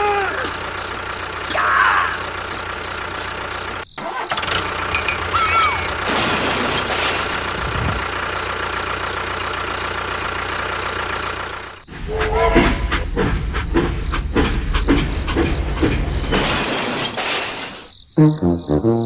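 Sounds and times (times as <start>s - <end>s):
engine running: 4.4s - 16.9s
short high squeaks: 11.9s - 17.8s.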